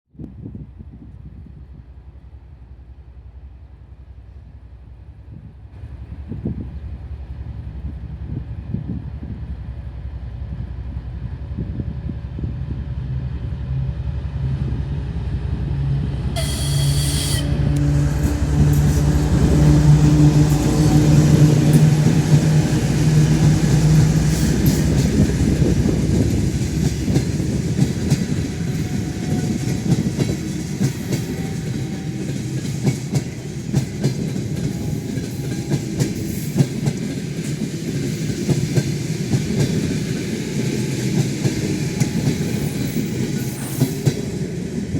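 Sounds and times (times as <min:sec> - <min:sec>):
diesel locomotive engine drone: 0:00.4 - 0:44.9
train horn blast: 0:16.3 - 0:25.2, 0:28.5 - 0:30.3, 0:31.0 - 0:32.8.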